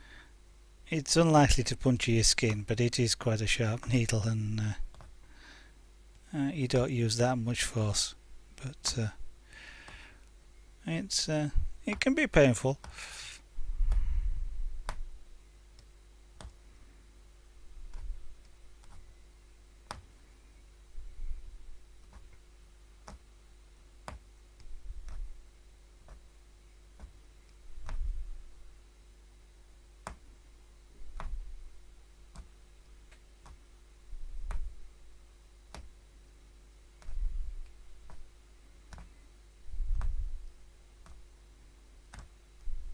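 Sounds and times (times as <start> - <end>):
punch needle clicking through fabric: 14.8 - 15.1, 15.8 - 16.6, 17.8 - 19.1, 19.9 - 20.1, 23.0 - 23.3, 24.0 - 25.4, 26.0 - 26.2, 27.0 - 28.2, 30.0 - 30.3, 31.0 - 31.5, 32.3 - 33.6, 34.3 - 34.8, 35.7 - 36.0, 37.0 - 38.3, 38.9 - 39.2, 39.9 - 40.4, 41.0 - 41.3, 42.1 - 42.4.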